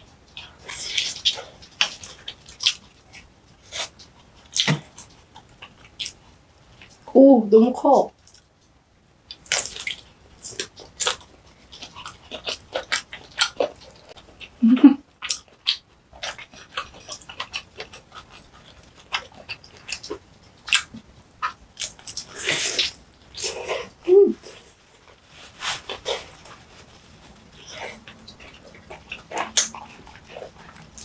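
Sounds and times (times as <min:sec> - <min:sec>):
chewing sausage: 0:00.0 - 0:07.1, 0:08.1 - 0:31.0
person humming: 0:14.6 - 0:15.0, 0:24.0 - 0:24.6
breathy hissing slurp: 0:22.2 - 0:24.8.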